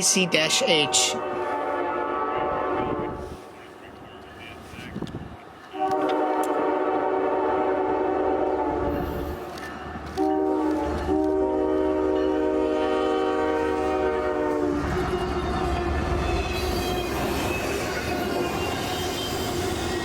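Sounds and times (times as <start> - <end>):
train passing: 0.0 - 20.0
locomotive air horn: 0.9 - 3.6, 5.7 - 9.4, 10.1 - 15.5.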